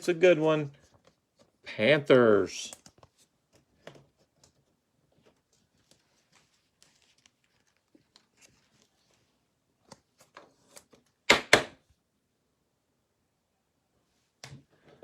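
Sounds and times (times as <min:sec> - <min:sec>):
trading cards rustling: 0:02.7 - 0:11.0.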